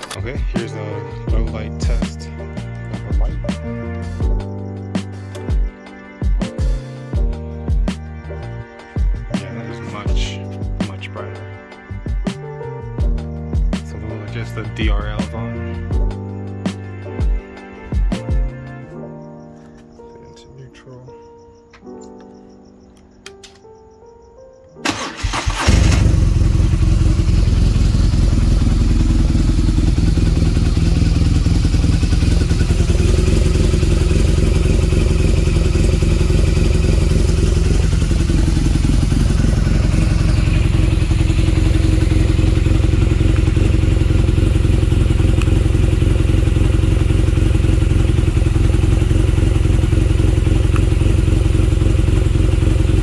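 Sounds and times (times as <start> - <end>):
motorcycle engine starting and idling: 0.0 - 2.0, 24.8 - 53.0.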